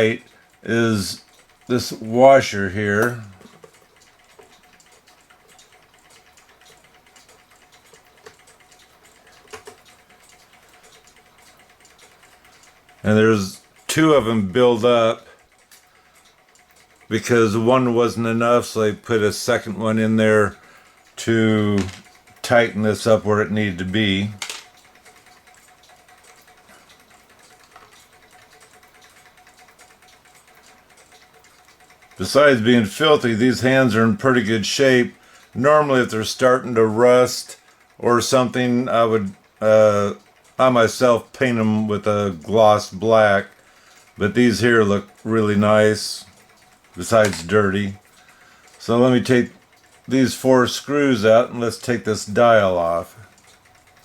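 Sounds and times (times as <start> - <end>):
faint rapid ticking: 0.0 - 54.0
faint steady hum: 0.0 - 54.0
small metal parts clicking: 24.4 - 32.2.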